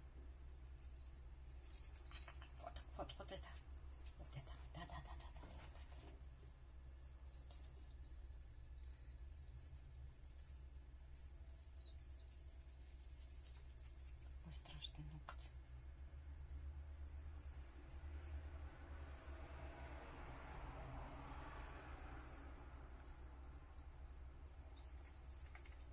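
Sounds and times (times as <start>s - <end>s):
low steady hum: 0.0s - 25.9s
crickets chirping: 15.7s - 24.6s.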